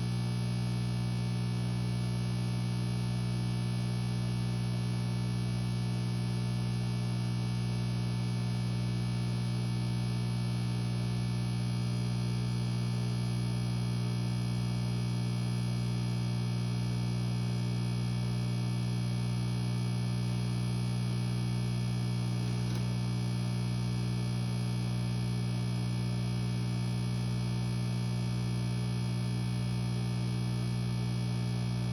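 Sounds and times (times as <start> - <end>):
aquarium air pump humming: 21.9 - 23.1.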